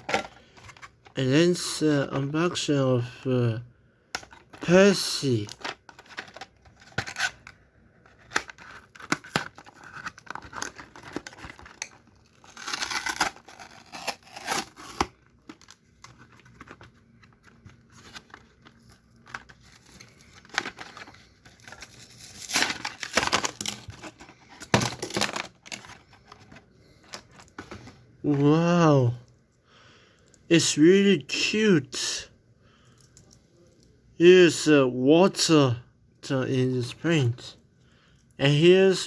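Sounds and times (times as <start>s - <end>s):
cardboard and plastic tearing: 4.2s - 28.6s.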